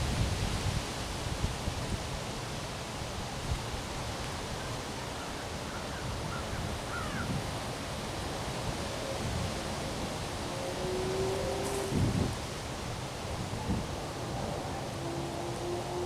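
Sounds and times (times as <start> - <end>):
rushing wind: 0.0 - 4.6, 6.0 - 16.0.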